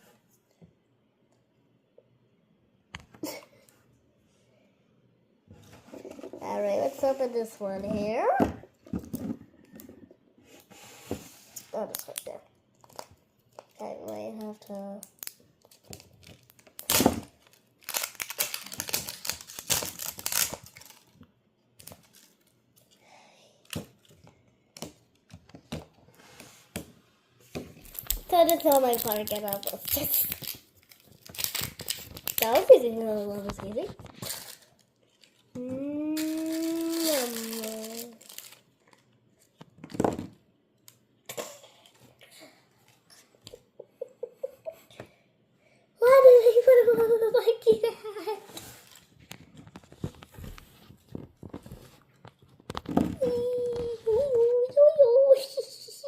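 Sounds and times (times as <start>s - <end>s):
plastic packaging crinkling and tearing: 11.8s - 22.6s, 27.8s - 35.5s, 36.2s - 39.1s
plastic toy parts rustling: 15.1s - 21.2s, 21.8s - 23.0s, 27.7s - 35.6s, 36.2s - 40.3s.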